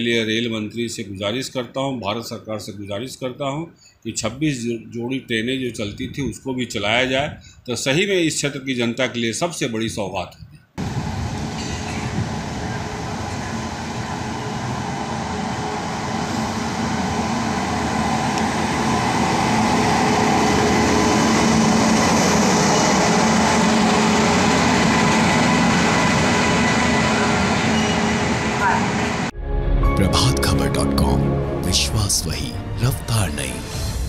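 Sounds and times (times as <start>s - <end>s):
passing train rumble: 10.8s - 34.0s.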